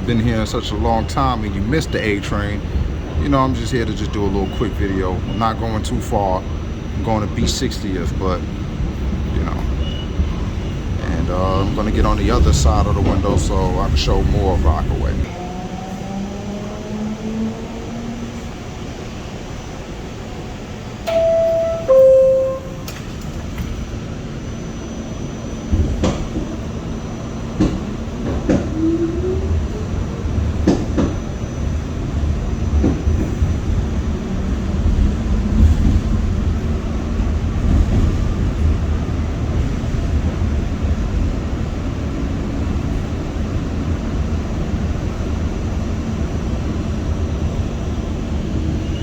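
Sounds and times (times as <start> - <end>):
train running low rumble: 0.0 - 49.0
two-note door chime: 21.1 - 23.1.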